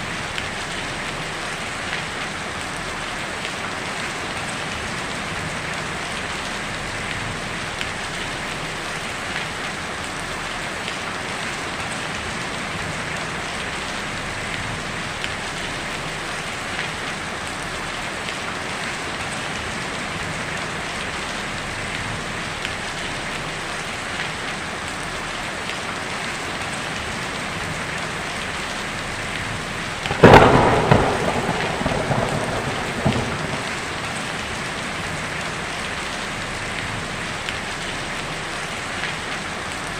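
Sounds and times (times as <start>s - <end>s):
heavy rain on a tin roof: 0.0s - 39.9s
thunderclap rumbling: 30.0s - 35.7s.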